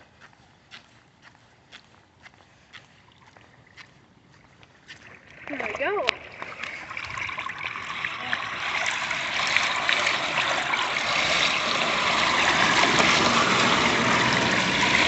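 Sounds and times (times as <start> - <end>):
floodwater rushing into storm drain: 4.9 - 15.0.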